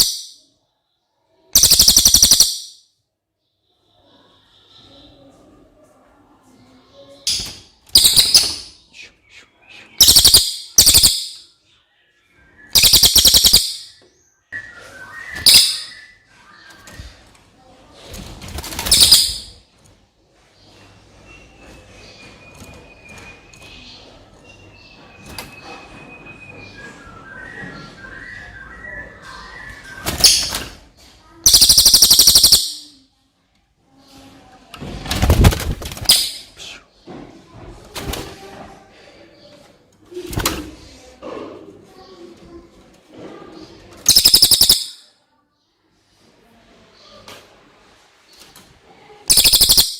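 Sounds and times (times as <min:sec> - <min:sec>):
bird trilling: 0:01.6 - 0:02.8, 0:07.3 - 0:08.8, 0:10.0 - 0:11.4, 0:12.7 - 0:14.0, 0:15.1 - 0:16.2, 0:18.8 - 0:19.5, 0:31.5 - 0:33.0, 0:44.0 - 0:45.0, 0:49.3 - 0:49.9
songbird singing: 0:06.9 - 0:17.5, 0:20.4 - 0:30.6, 0:31.4 - 0:33.0, 0:43.6 - 0:45.1, 0:49.3 - 0:49.9
fast rattling trill: 0:12.8 - 0:13.9, 0:31.5 - 0:32.8, 0:44.1 - 0:44.9, 0:49.3 - 0:49.9.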